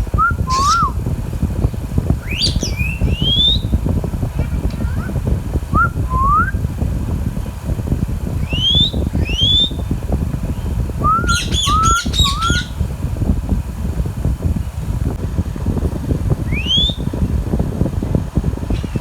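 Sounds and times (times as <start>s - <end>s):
low rumble: 0.0s - 19.0s
parakeet rising whistles: 0.2s - 1.0s, 2.2s - 3.8s, 8.4s - 9.8s, 11.0s - 12.8s, 16.5s - 17.1s
parakeet harsh chirps: 0.4s - 1.0s, 2.2s - 3.7s, 11.2s - 12.8s.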